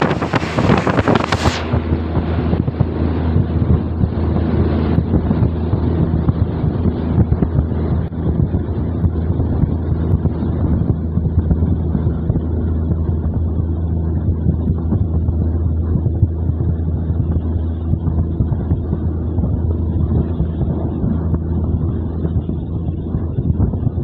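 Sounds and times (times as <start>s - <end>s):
wind rushing: 0.0s - 24.0s.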